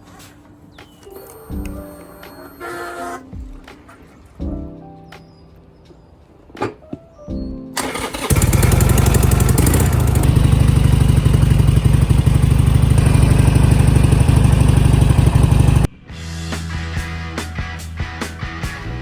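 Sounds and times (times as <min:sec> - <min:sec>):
motorcycle engine cranking: 0:07.8 - 0:15.9
motorcycle engine running: 0:07.8 - 0:15.9.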